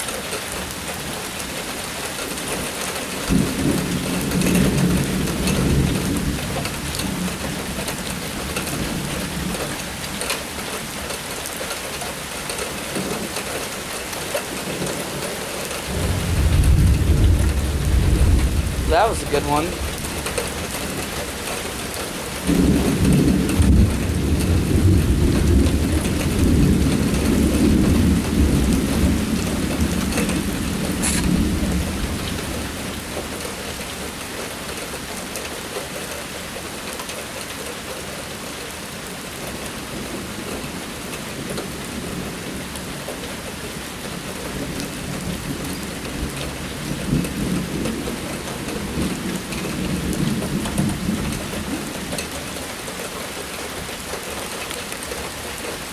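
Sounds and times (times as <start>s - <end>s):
heavy rain: 0.0s - 55.9s
rolling thunder rumble: 3.3s - 10.0s, 15.9s - 21.8s, 22.4s - 33.4s, 44.4s - 52.3s.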